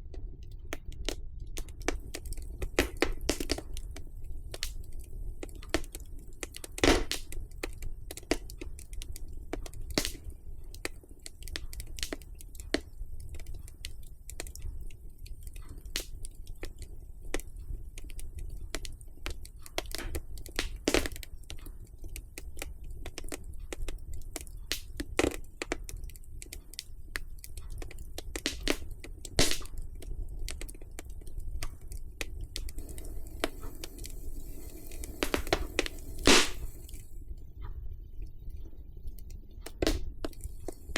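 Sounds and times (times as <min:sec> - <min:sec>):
wood fire crackling: 0:00.0 - 0:40.9
fire pops: 0:00.1 - 0:37.7, 0:38.6 - 0:40.9
soft hiss: 0:22.7 - 0:37.6, 0:39.4 - 0:40.9.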